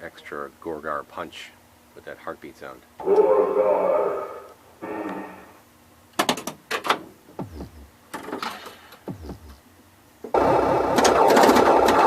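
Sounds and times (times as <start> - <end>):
pinball mechanical clacks: 10.3 - 12.0.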